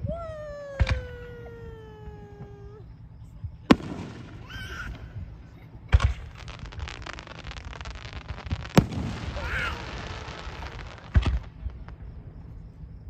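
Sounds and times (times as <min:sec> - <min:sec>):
firework bangs: 0:03.6 - 0:12.7
rapid firework crackling: 0:03.7 - 0:12.4.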